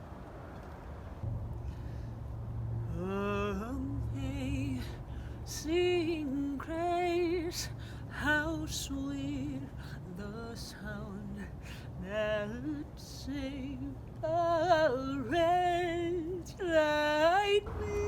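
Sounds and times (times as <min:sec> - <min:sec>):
steady low hum: 0:01.0 - 0:18.0
woman singing long notes: 0:12.0 - 0:18.0.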